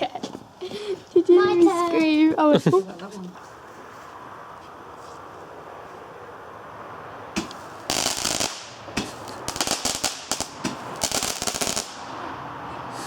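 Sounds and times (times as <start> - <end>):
firework crackling bangs and hissing: 7.3 - 12.2
firework crack: 7.3 - 12.3.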